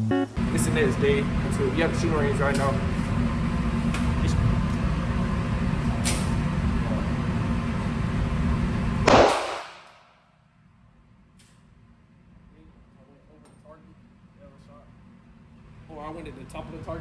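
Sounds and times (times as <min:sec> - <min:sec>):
vehicle rumble: 0:00.0 - 0:09.5
loud sudden hit: 0:09.0 - 0:09.8.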